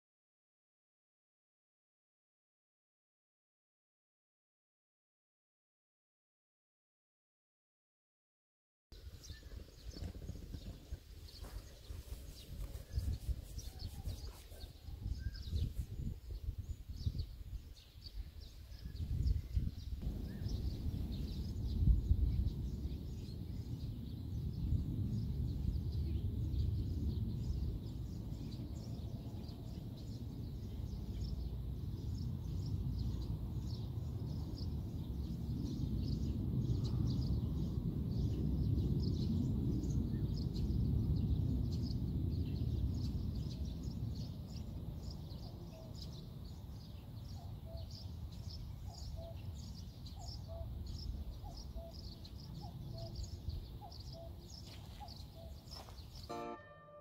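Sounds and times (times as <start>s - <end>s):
small birds chirping: 9.0s - 57.0s
low outdoor rumble: 20.0s - 35.6s.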